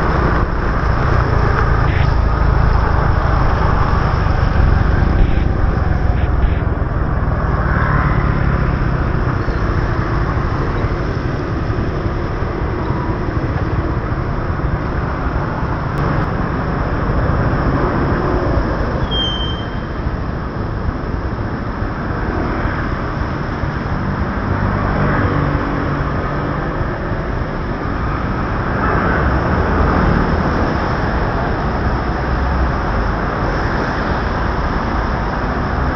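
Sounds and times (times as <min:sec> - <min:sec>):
motorbike engine rumble: 0:00.0 - 0:21.1
traffic: 0:00.0 - 0:35.9
wind and road noise: 0:00.0 - 0:35.9
brief high squeak: 0:19.0 - 0:19.9.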